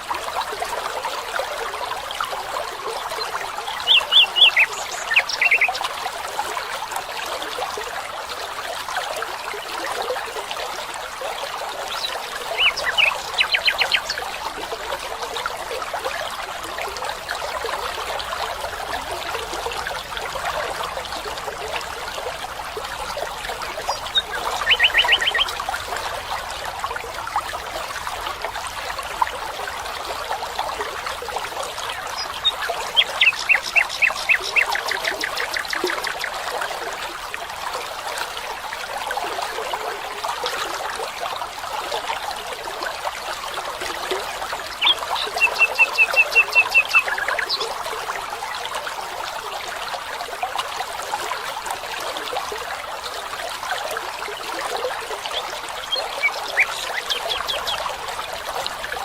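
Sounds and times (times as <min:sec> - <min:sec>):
stream trickling: 0:00.0 - 0:59.0
bird calling repeated notes: 0:03.8 - 0:05.8, 0:24.1 - 0:25.6.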